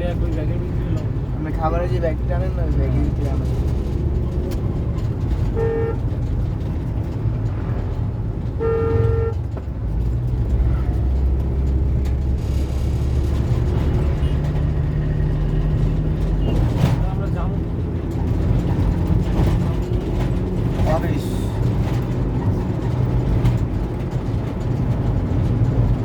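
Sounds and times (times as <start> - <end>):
road traffic rumble: 0.0 - 26.0
vehicle horn honking: 5.5 - 6.0, 8.6 - 9.4.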